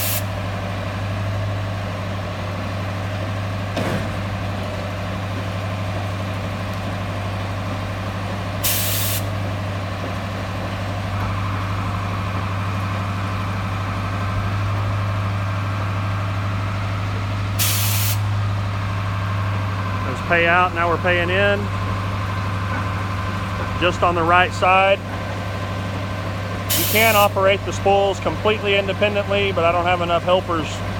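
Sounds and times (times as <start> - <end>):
air hiss blasts: 0.0 - 0.3, 8.6 - 9.3, 17.6 - 18.3, 26.7 - 27.3
truck engine running: 0.0 - 30.9.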